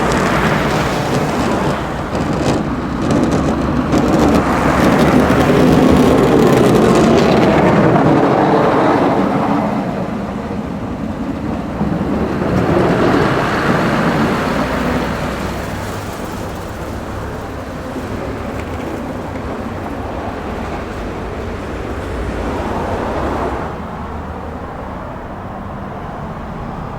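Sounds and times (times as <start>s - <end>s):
heavy trucks driving by: 0.0s - 26.9s
steady road noise: 0.0s - 26.9s.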